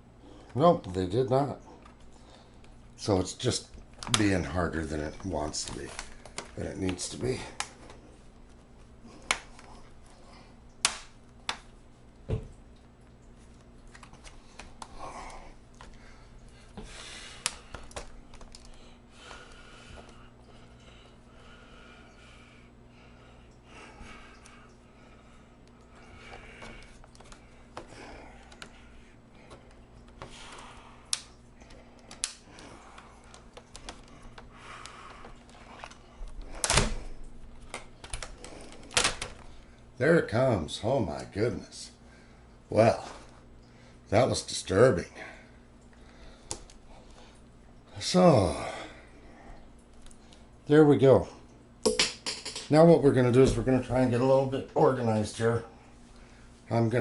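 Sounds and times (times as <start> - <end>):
plastic clicks and snaps: 4.0 - 4.3, 32.0 - 32.4
plastic clips clicking and cracking: 4.0 - 4.3, 32.0 - 32.6, 37.6 - 39.5.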